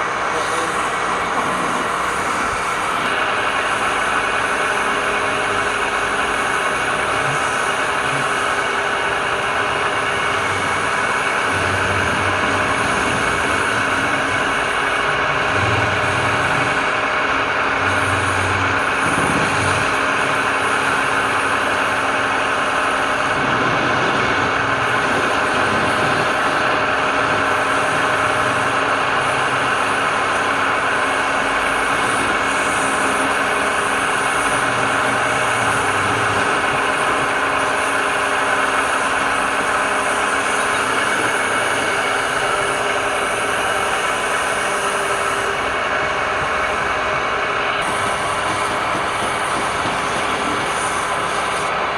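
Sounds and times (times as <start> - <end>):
power tool whirring: 0.0 - 51.8.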